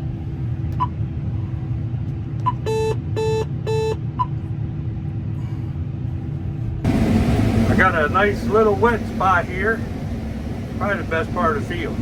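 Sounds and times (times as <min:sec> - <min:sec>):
engine rumble inside cab: 0:00.0 - 0:12.0
short electronic beeps: 0:02.5 - 0:04.4.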